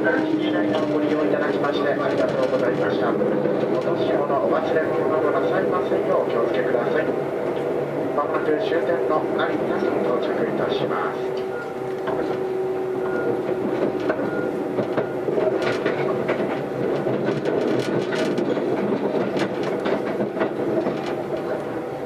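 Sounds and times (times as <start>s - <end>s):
train rolling rumble: 0.0s - 22.0s
wheels clicking over track: 0.7s - 4.4s, 13.2s - 21.6s.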